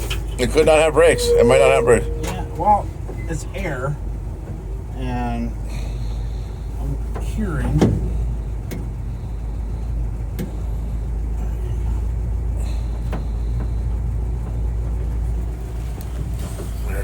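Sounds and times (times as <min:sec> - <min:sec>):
truck engine idling: 0:00.0 - 0:17.0
sharp engine knocks: 0:06.5 - 0:11.3, 0:12.0 - 0:16.9.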